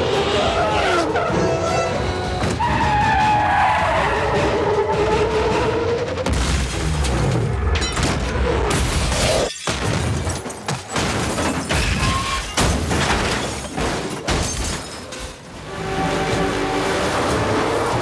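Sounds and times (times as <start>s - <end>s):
glass breaking: 8.8s - 15.4s.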